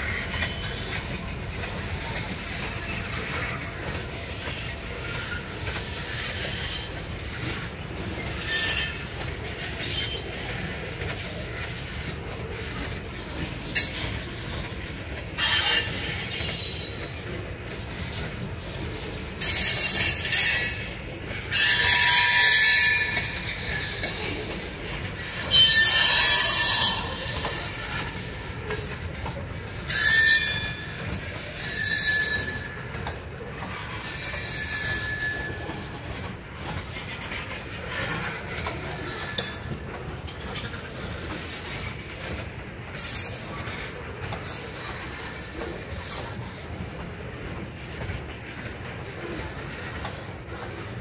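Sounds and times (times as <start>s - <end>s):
wheels rumbling on rail: 0.0s - 51.0s
high-pitched wheel squeal: 25.5s - 27.5s, 29.9s - 31.0s, 31.6s - 32.8s, 34.1s - 35.8s.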